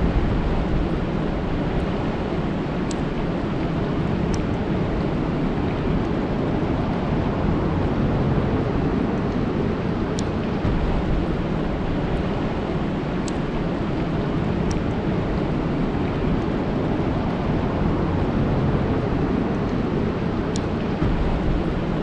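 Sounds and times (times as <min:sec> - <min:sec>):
rain falling on lake: 0:00.0 - 0:22.0
faint high ticks: 0:13.2 - 0:13.5.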